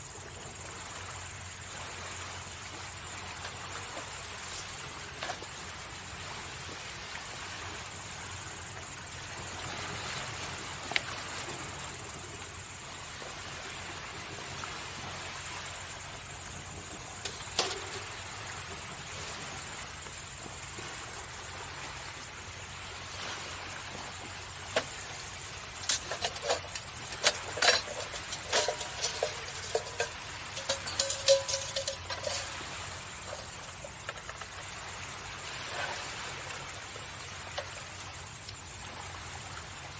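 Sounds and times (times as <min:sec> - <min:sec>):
waves washing on shore: 0:00.0 - 0:39.9.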